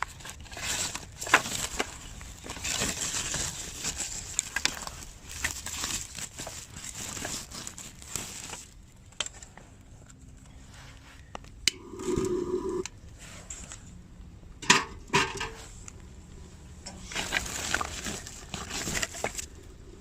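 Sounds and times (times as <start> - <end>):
crinkling and rustling: 0.0 - 11.6, 14.6 - 20.0
short humming tone: 11.8 - 12.9.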